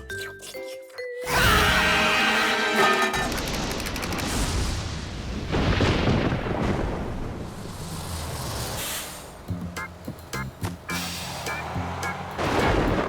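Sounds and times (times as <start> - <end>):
music: 0.0 - 3.3, 9.5 - 13.0
cartoon thunder rumble: 3.2 - 7.7.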